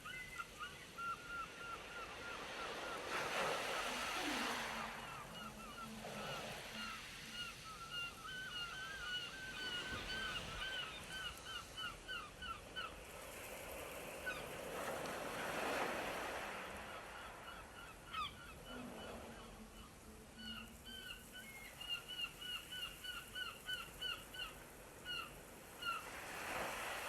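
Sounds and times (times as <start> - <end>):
sea wind: 0.0 - 27.0
surf: 2.1 - 7.6.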